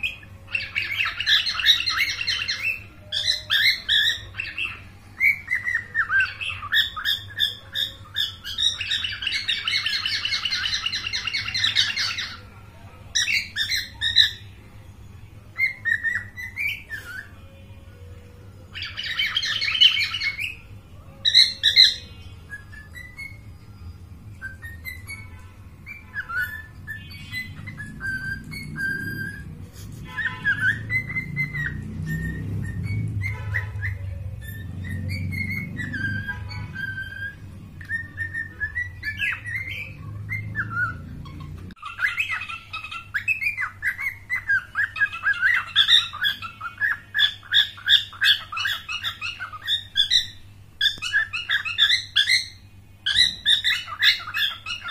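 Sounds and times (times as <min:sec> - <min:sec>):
cockatiel chirping and calling: 0:00.0 - 0:14.6, 0:15.5 - 0:17.6, 0:18.6 - 0:54.9
cockatiel whistled notes: 0:21.3 - 0:54.9
cockatiel rapid chattering: 0:30.0 - 0:54.9.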